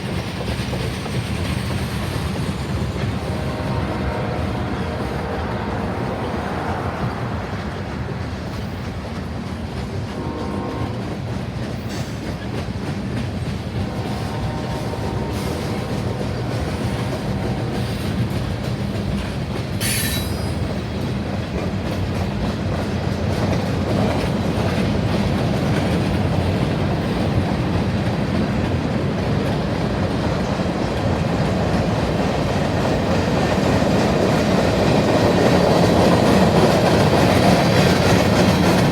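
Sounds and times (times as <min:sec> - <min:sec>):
train wheels rumbling and clattering: 0:00.0 - 0:38.9
wheel squeal: 0:19.8 - 0:20.8.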